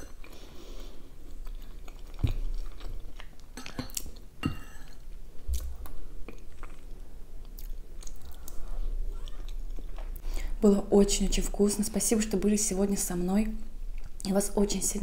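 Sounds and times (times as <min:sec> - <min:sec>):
close chewing and mouth sounds: 0:00.1 - 0:10.5, 0:13.9 - 0:14.3.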